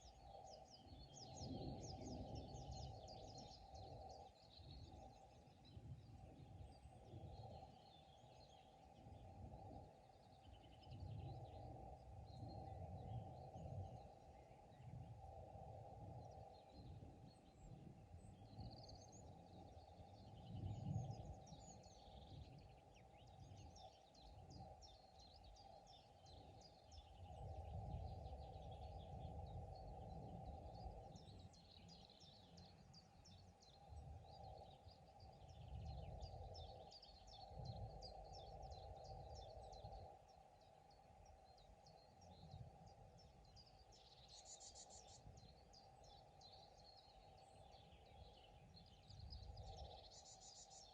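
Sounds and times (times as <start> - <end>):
birds twittering: 16.2 - 50.9.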